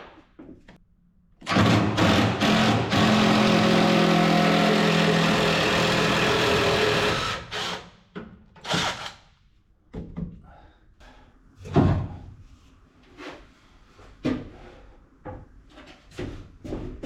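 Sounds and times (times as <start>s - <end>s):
wooden knocks and clunks: 9.9s - 10.4s, 11.6s - 12.3s.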